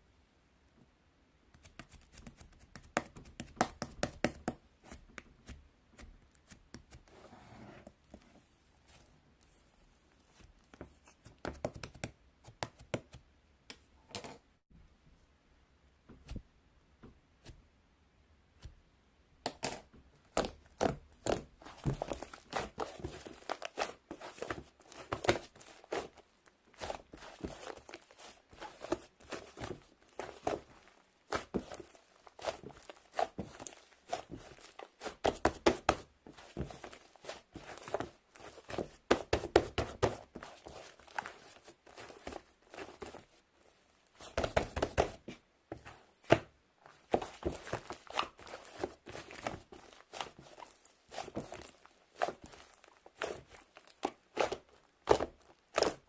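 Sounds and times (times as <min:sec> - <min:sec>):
objects being handled: 0:19.4 - 0:56.0.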